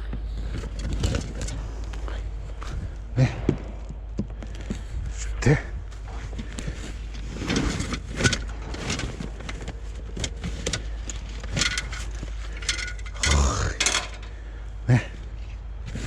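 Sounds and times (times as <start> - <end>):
water pump parts clicking and rattling: 0.0 - 2.1, 6.2 - 14.7.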